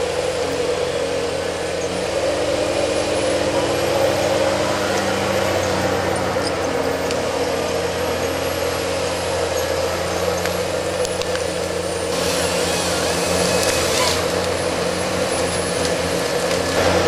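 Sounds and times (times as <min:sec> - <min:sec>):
harvester engine running: 0:00.0 - 0:17.0
chainsaw cutting log: 0:12.1 - 0:17.0.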